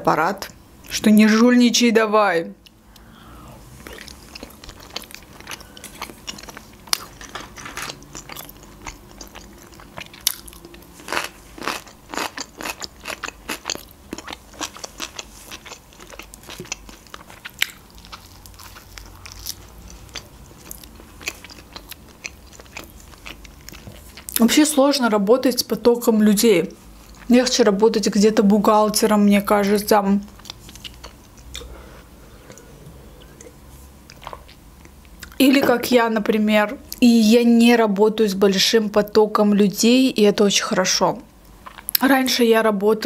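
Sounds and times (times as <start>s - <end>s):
wet mouth chewing clicks: 30.3s - 31.7s.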